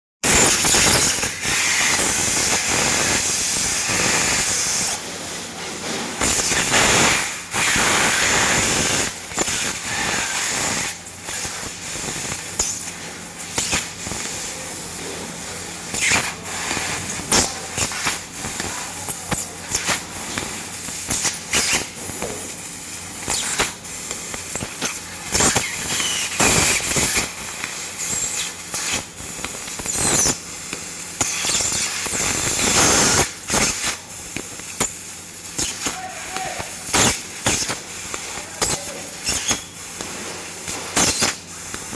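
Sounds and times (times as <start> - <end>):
laser crackles and pops: 0.2 - 5.0, 6.2 - 14.8, 15.8 - 41.9
hiss of assist gas: 5.8 - 14.8, 31.2 - 41.9.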